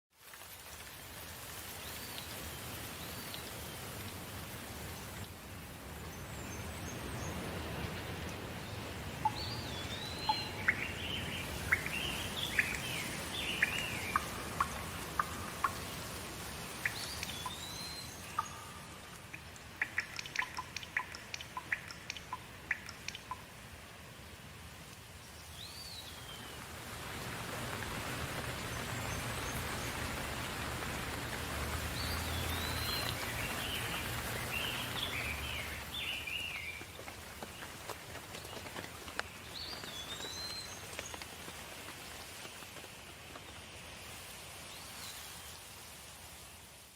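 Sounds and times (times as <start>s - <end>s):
steady rain: 0.1s - 46.9s
sharp drips ticking: 6.6s - 23.9s, 28.6s - 44.2s.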